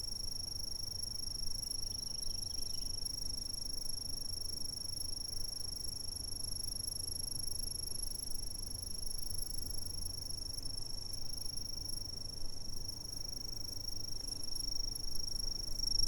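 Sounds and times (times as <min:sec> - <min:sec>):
insects trilling: 0:00.9 - 0:03.8.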